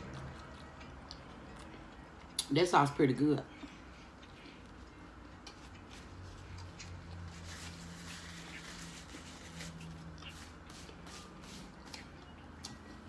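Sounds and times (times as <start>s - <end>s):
chewing with wet mouth clicks: 0.0s - 2.6s, 11.9s - 12.9s.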